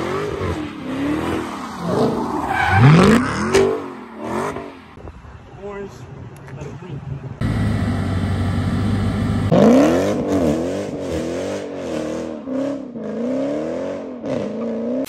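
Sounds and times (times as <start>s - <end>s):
car engine revving: 7.4s - 15.0s.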